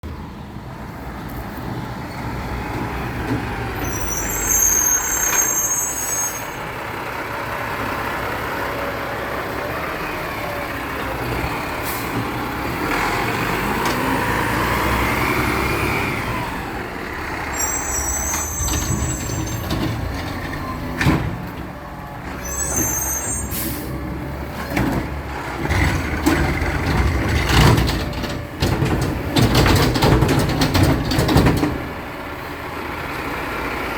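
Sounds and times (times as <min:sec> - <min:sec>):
garbage truck engine running: 0:00.0 - 0:33.9
air brake hisses: 0:22.4 - 0:24.0.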